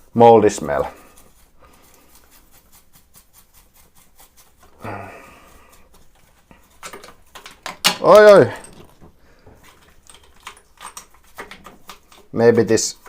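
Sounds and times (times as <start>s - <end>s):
brush scrubbing: 0.0s - 13.0s
breathy vocal sound: 4.8s - 5.9s.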